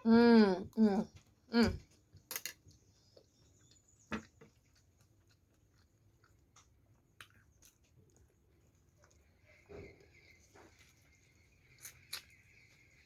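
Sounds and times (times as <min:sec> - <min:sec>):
chewing food: 0:01.0 - 0:13.0.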